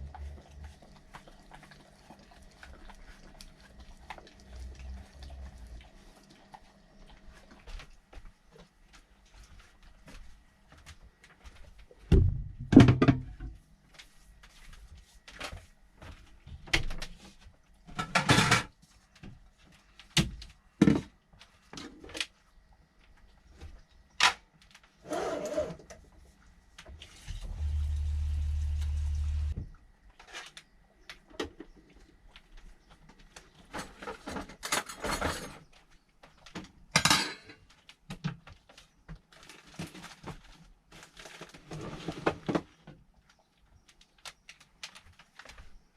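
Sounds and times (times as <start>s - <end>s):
knocks and clatter of handling: 11.3s - 13.6s, 33.0s - 45.8s
machine hum: 27.3s - 29.6s.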